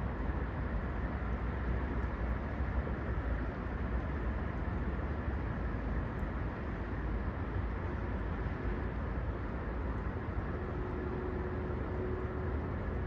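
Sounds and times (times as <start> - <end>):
faint steady hum: 0.0 - 13.0
outdoor background rumble: 0.0 - 13.0.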